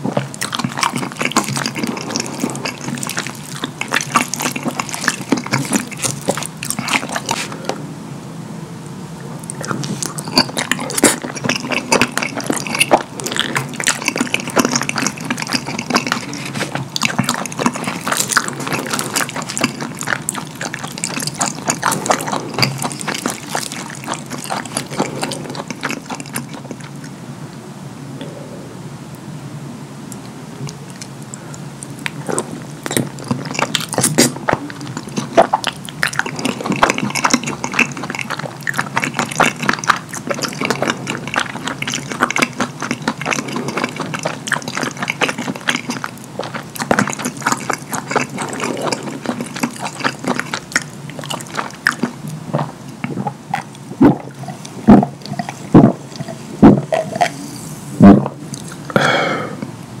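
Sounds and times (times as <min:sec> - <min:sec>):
wet chewing and lip-smacking: 0:00.0 - 0:07.7, 0:09.4 - 0:27.2, 0:30.1 - 0:57.6, 0:58.2 - 0:59.2
loud gulps drinking: 0:00.0 - 0:07.8, 0:09.4 - 0:27.1, 0:30.6 - 0:59.7
breathy exhale: 0:58.9 - 0:59.7.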